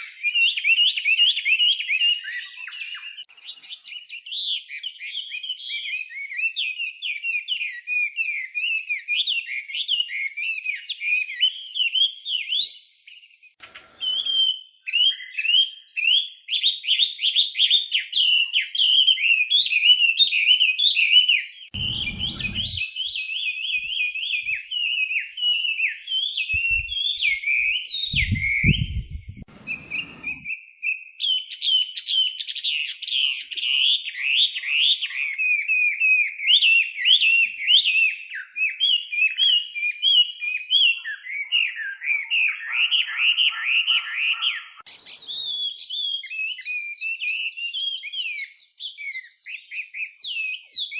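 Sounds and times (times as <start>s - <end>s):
bird singing whistled phrases: 0.0s - 50.9s
low thuds: 21.8s - 22.8s, 28.2s - 30.4s.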